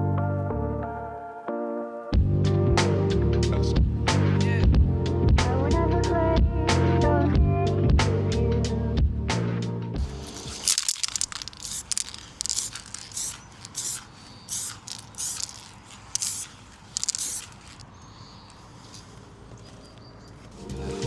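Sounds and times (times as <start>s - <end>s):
music: 0.0s - 10.5s, 20.6s - 21.0s
spray hissing in short bursts: 11.0s - 17.8s.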